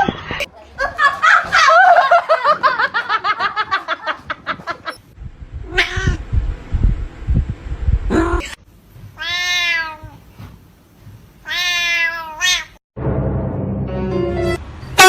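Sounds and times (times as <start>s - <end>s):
low thumps: 5.1s - 9.2s
cat meowing: 5.7s - 6.2s, 9.2s - 10.2s, 11.4s - 12.8s
cat yowling: 5.7s - 6.2s, 9.2s - 10.2s, 11.4s - 12.8s.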